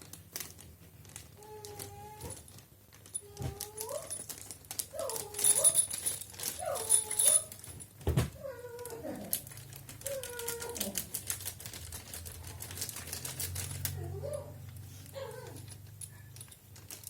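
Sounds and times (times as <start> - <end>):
fast light clicks and rattles: 8.8 - 17.0.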